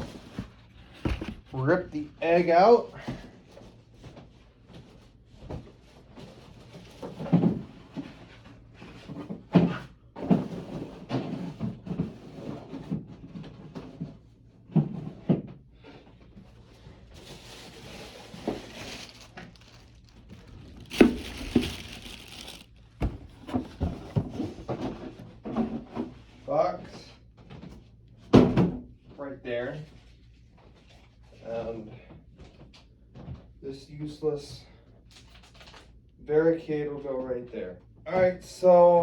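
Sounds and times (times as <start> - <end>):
cardboard rustling and tearing: 0.1 - 1.5, 17.1 - 24.0
cardboard knocks and thunks: 0.2 - 1.5, 18.4 - 25.0.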